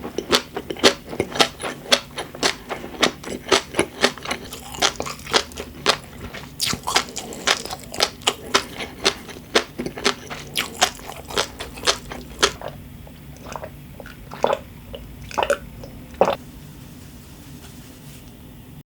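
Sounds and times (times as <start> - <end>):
crunchy chewing: 0.0 - 16.4
soft wet mouth squishes: 4.0 - 16.4.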